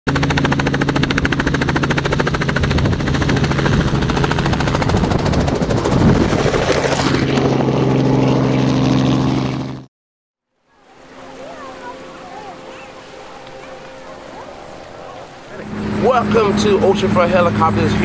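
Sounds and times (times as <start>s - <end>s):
rush of wind: 0.1s - 9.0s
helicopter engine drone: 0.1s - 9.9s, 10.9s - 18.0s.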